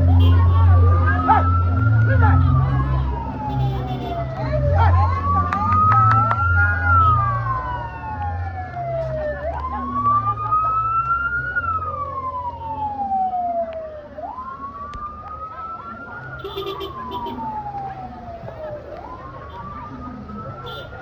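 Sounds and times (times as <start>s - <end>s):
vehicle siren wailing: 0.0s - 21.0s.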